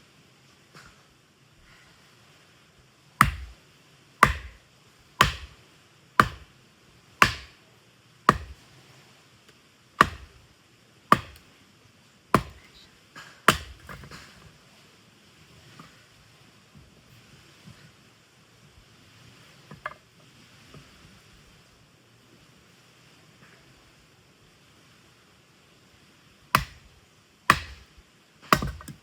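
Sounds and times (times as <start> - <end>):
axe chopping firewood: 3.2 - 3.6, 4.2 - 4.6, 5.2 - 5.6, 6.2 - 6.5, 7.2 - 7.6, 8.3 - 8.6, 10.0 - 10.4, 11.1 - 11.5, 12.3 - 14.4, 26.6 - 26.9, 27.5 - 29.0.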